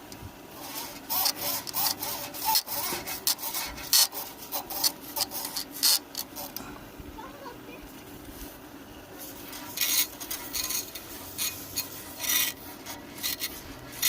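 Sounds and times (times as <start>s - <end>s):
rubbing and scraping strokes: 0.5s - 6.6s, 9.2s - 14.0s.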